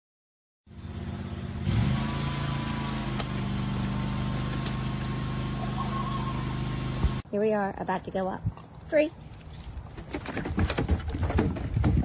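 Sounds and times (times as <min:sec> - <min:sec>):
diesel engine idling: 0:00.7 - 0:07.2.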